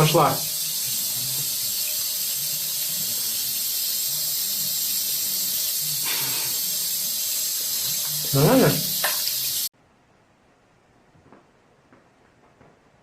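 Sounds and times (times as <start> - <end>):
tap water running: 0.0 - 9.7.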